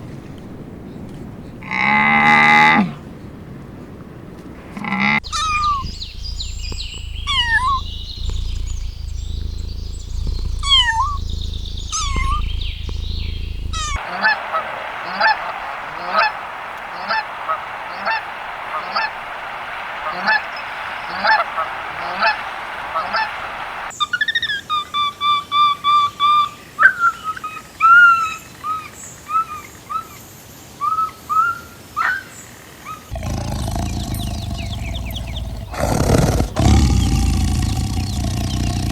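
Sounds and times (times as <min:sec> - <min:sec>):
steady hiss: 0:04.4 - 0:23.9, 0:33.1 - 0:38.9
birds calling: 0:04.9 - 0:24.1, 0:30.8 - 0:38.9
low hum: 0:05.2 - 0:14.0.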